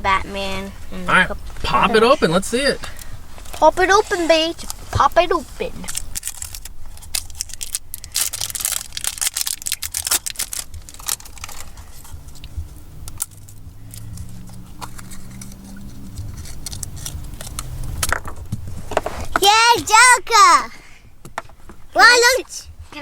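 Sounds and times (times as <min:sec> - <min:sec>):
plastic wrapping crinkling: 0:05.8 - 0:20.2.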